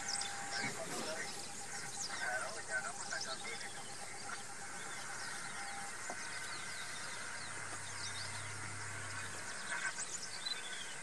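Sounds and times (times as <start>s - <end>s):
birds chirping: 0.0s - 11.0s
low steady hum: 0.0s - 11.0s.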